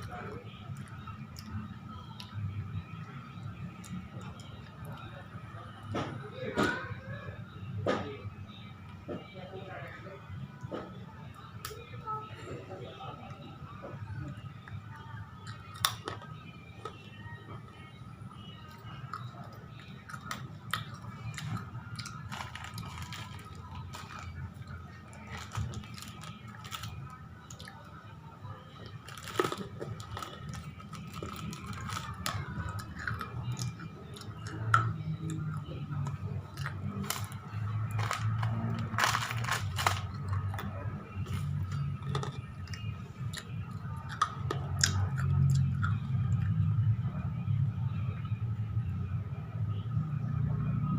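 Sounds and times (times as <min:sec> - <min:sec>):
chips crunching: 0:15.5 - 0:16.3, 0:18.7 - 0:27.9, 0:28.8 - 0:46.5.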